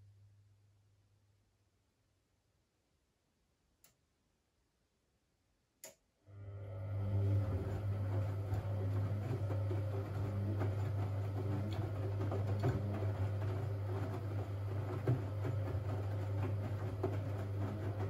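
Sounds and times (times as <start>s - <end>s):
washing machine humming: 6.3s - 18.0s.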